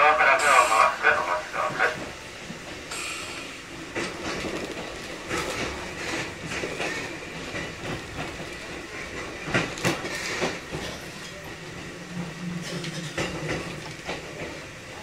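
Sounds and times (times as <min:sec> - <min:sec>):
train running noise: 0:00.0 - 0:15.0
wheels clacking over rail joints: 0:03.9 - 0:14.6.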